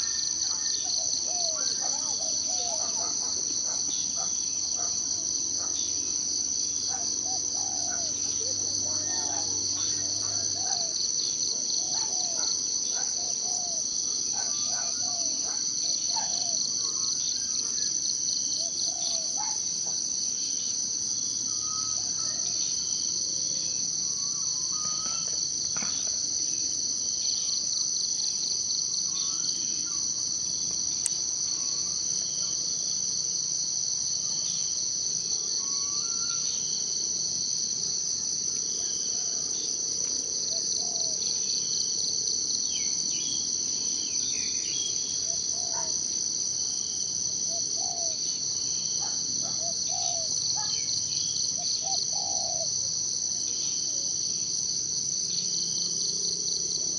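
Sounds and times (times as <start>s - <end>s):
insects trilling: 0.0s - 56.9s
bird calls: 24.1s - 26.1s, 49.0s - 50.9s.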